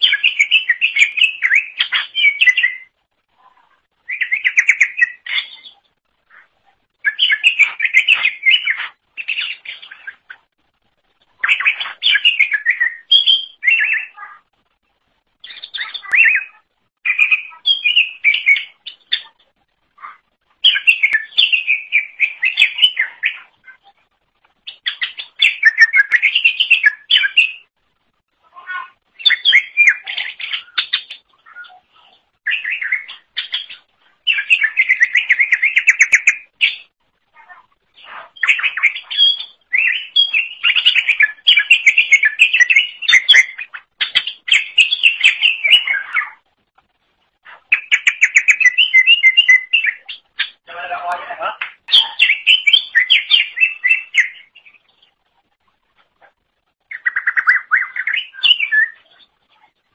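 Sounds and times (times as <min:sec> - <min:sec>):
bird singing chirps and whistles: 0:00.0 - 0:02.9, 0:04.0 - 0:05.8, 0:07.0 - 0:10.3, 0:11.4 - 0:14.2, 0:15.4 - 0:19.3, 0:20.6 - 0:23.5, 0:24.7 - 0:27.7, 0:29.2 - 0:31.8, 0:32.5 - 0:36.9, 0:38.1 - 0:46.4, 0:47.7 - 0:50.6, 0:51.9 - 0:54.8, 0:56.9 - 0:59.3.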